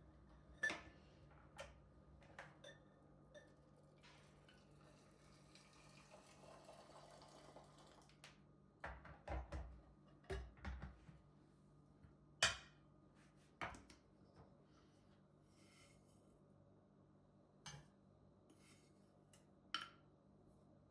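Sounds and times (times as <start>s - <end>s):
kitchen items knocking and clunking: 8.8s - 11.0s.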